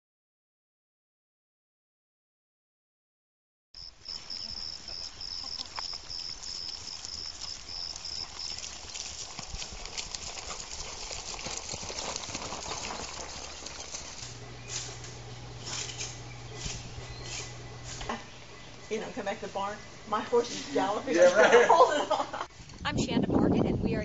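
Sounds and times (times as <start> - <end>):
horse hooves clip-clopping: 4.0 - 19.7.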